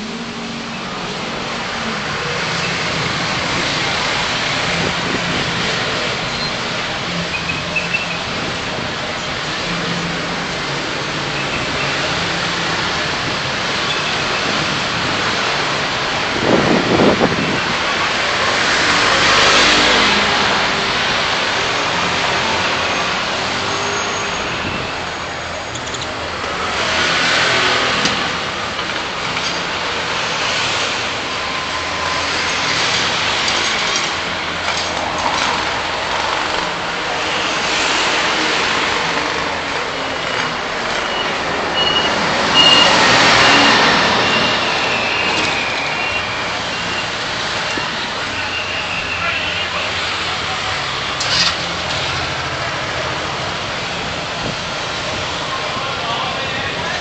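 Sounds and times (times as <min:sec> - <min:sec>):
road traffic passing: 0:00.0 - 0:57.0.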